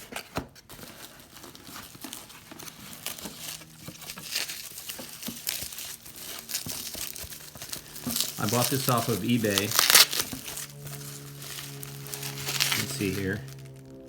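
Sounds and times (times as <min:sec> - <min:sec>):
packaging crinkling and rustling: 0:00.0 - 0:14.0
packaging tearing: 0:00.0 - 0:14.0.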